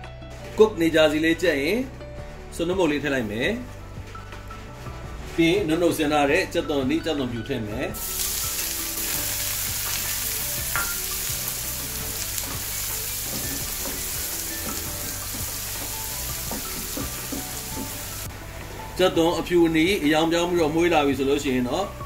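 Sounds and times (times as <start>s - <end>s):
wooden spoon stirring: 8.0s - 19.6s
onion sizzling in hot oil: 8.0s - 22.0s.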